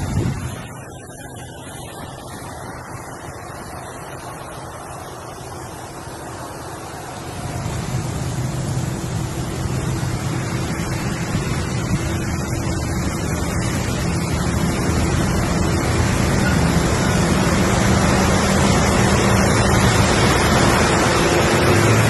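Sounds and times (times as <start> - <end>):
truck engine running low: 0.0 - 22.0
wind and road noise: 0.0 - 22.0.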